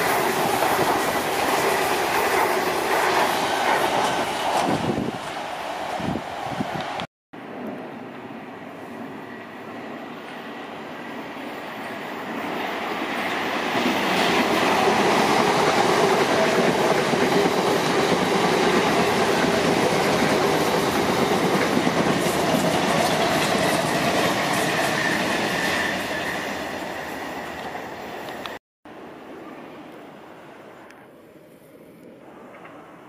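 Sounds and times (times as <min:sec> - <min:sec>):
electric train passing: 0:00.0 - 0:33.0.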